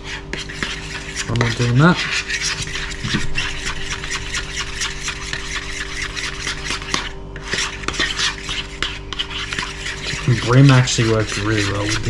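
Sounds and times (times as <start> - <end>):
steady hum: 0.0 - 12.0
utensil scraping a bowl: 0.0 - 12.0.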